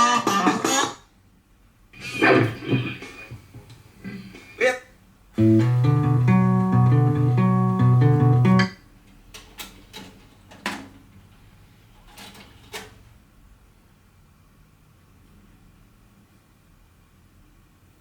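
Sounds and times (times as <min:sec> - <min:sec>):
guitar music: 0:05.4 - 0:08.8.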